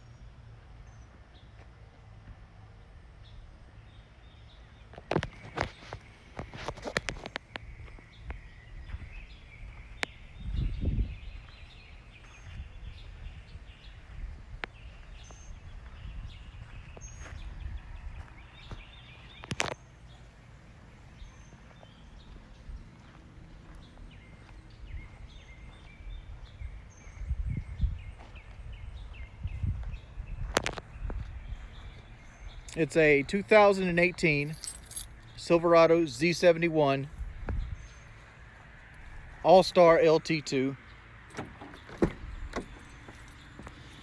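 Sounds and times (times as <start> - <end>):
faint birds chirping: 0.0 - 44.0
low rumbles on microphone: 7.7 - 11.7, 23.9 - 32.7.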